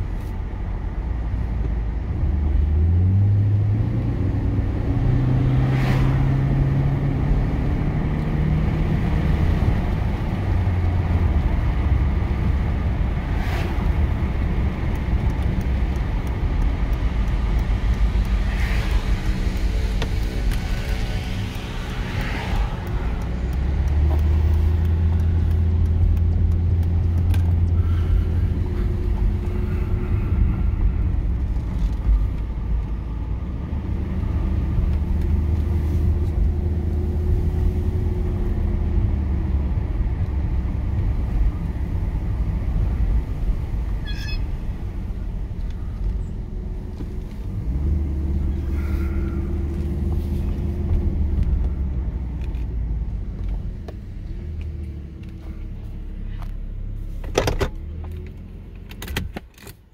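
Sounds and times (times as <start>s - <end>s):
car engine and tyres hum: 0.0s - 59.9s.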